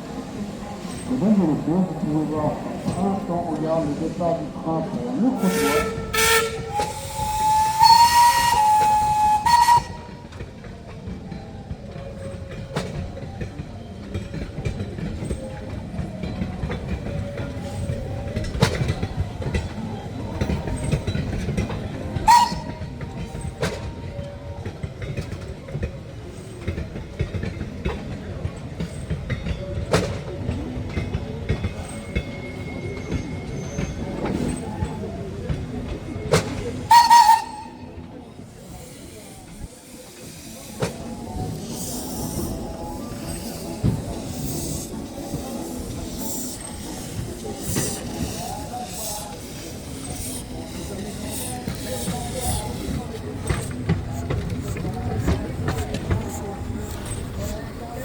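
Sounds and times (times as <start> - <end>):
train rumbling: 0.0 - 58.0
train whistle: 5.4 - 10.4, 22.2 - 23.0, 36.8 - 38.0
wheels clicking over rail joints: 5.5 - 58.0.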